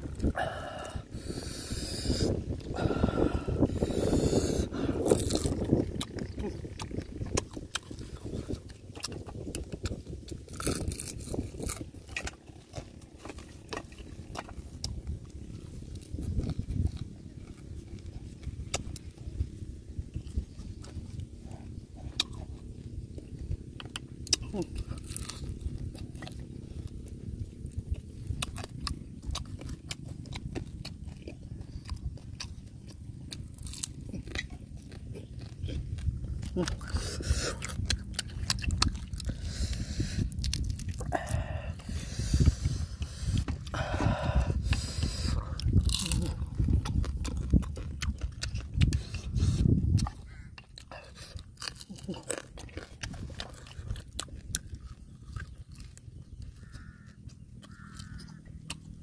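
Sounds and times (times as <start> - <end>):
chewing and mouth noises: 0.0 - 59.0
person crunching shellfish: 0.0 - 59.0
steady low rumble: 0.0 - 59.0
crisp mouth clicks: 0.2 - 15.0, 22.0 - 22.6, 23.8 - 26.4, 28.0 - 54.8.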